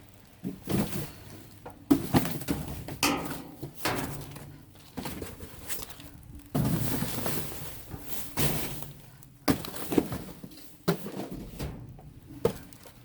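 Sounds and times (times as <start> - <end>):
cardboard and bags rustling: 0.0 - 13.0
sharp knocks and clatters: 2.4 - 6.0.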